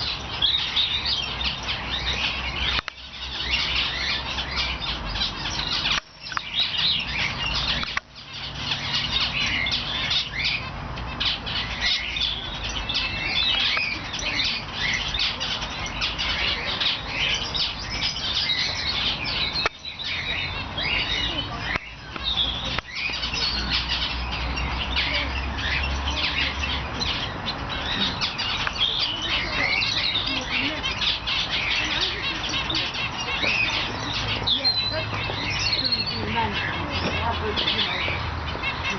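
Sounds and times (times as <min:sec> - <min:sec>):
caged birds chirping: 0:00.0 - 0:38.9.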